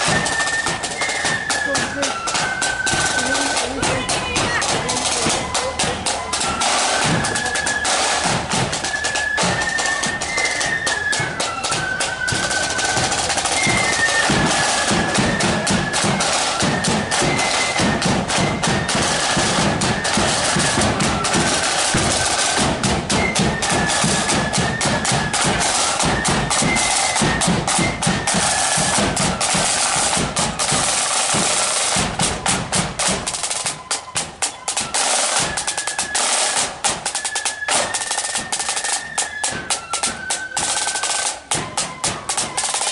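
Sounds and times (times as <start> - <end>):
flutes playing melody: 0.0 - 42.9
snare drums rolling: 0.0 - 42.9.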